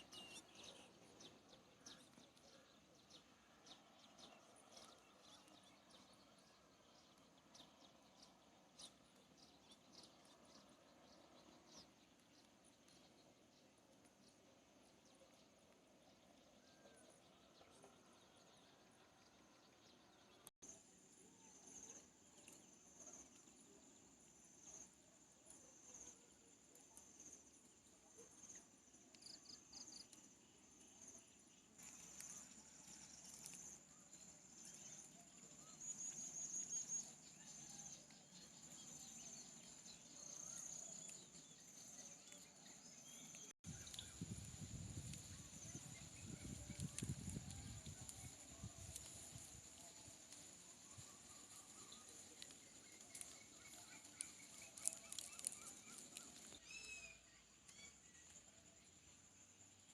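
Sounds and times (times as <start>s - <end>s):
low outdoor background: 0.0s - 59.9s
small birds chirping: 0.0s - 59.9s
insects chirring: 43.7s - 59.9s.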